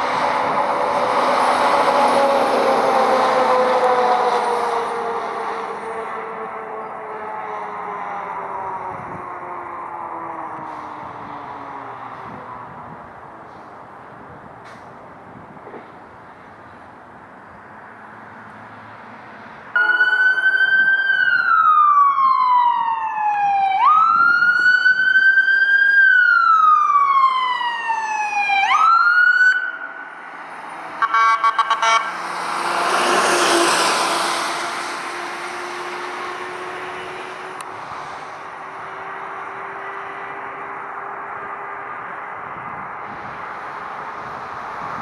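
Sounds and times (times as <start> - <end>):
emergency siren wailing: 0.0 - 13.3, 19.7 - 37.7
vehicle passing by: 0.0 - 13.8, 30.1 - 45.0
short siren blasts: 19.8 - 30.0, 31.0 - 32.3.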